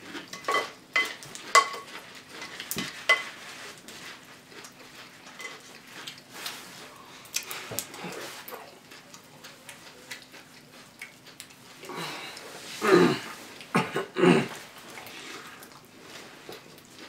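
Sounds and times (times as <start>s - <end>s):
spoons clinking against bowls: 0.3s - 3.4s, 5.4s - 5.6s.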